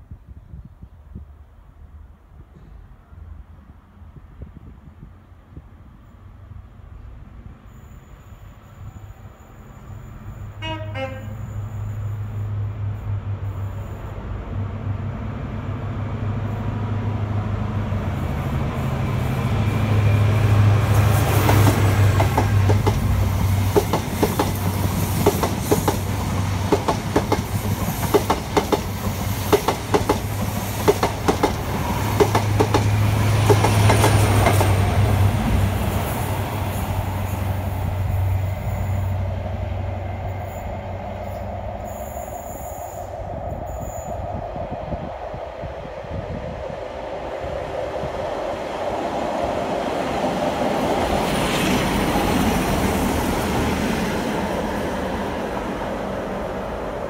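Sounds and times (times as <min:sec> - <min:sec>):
diesel locomotive hum: 0:00.4 - 0:57.0.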